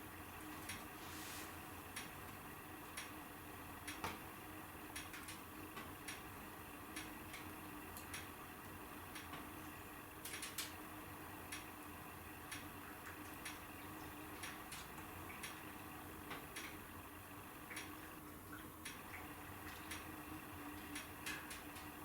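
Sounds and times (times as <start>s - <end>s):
wood fire crackling and popping: 10.2s - 10.8s.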